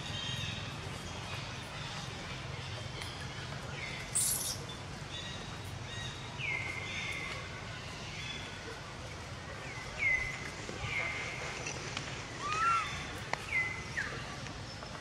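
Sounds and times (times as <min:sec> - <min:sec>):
birds whistling calls: 0:03.9 - 0:06.7.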